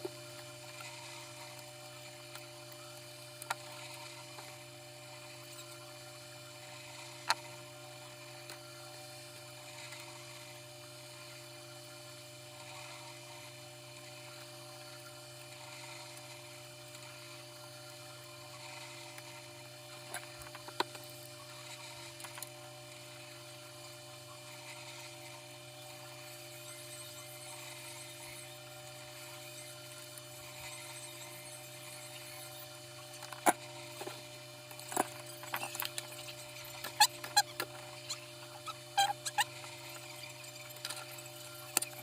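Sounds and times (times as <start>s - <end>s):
low electrical hum: 0.0s - 42.0s.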